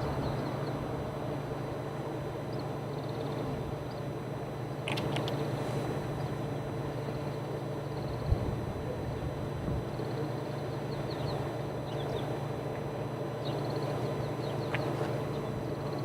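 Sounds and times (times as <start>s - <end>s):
steady low hum: 0.0s - 16.0s
small birds chirping: 2.5s - 4.1s, 9.9s - 12.4s, 13.4s - 16.0s.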